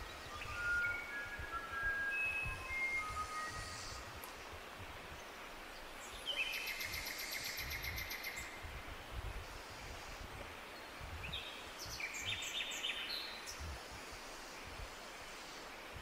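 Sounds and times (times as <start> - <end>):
songbirds singing: 0.0 - 16.0
steady wind-like hiss: 0.0 - 16.0.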